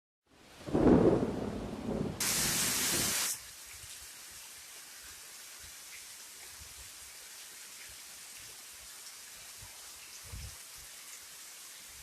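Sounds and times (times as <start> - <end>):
rain: 0.3 - 12.0
thunder rumble: 0.7 - 3.2.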